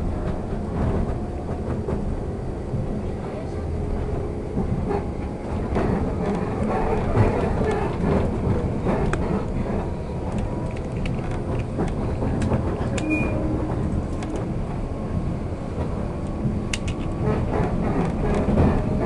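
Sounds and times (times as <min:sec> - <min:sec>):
train running rumble: 0:00.0 - 0:19.0
wheel and rail clicks: 0:05.7 - 0:14.5, 0:15.8 - 0:19.0.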